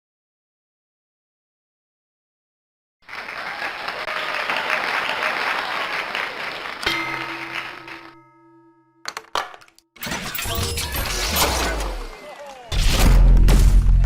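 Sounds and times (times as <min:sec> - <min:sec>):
applause: 0:03.0 - 0:08.2.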